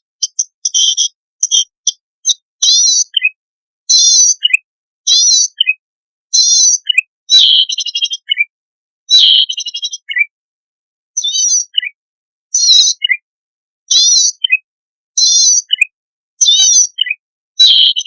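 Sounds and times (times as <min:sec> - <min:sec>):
bird singing buzzy phrases: 0:00.0 - 0:08.5, 0:09.1 - 0:10.4, 0:11.2 - 0:13.3, 0:13.9 - 0:18.0
rapid ticking bird trill: 0:00.0 - 0:08.5.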